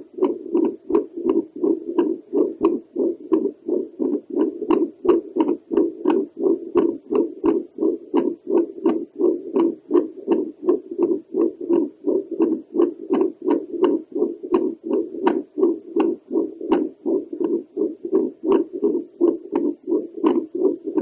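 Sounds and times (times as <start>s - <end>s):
doppler heartbeat whooshing pulses: 0.0s - 21.0s.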